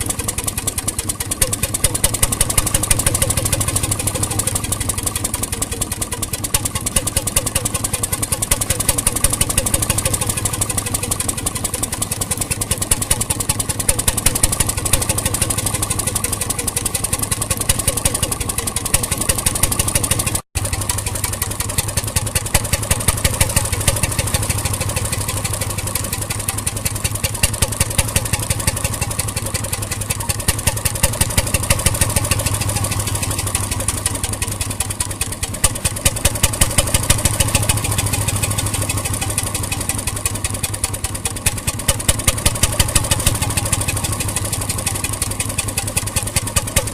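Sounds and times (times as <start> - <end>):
engine knocking and clattering: 0.0 - 46.9.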